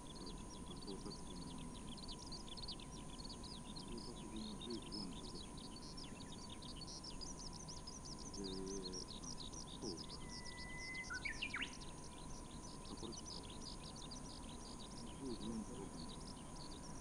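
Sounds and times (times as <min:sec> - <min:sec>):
faint steady tone: 0:00.0 - 0:17.0
small birds chirping rapidly: 0:00.0 - 0:17.0
held whistled bird note: 0:09.8 - 0:11.8.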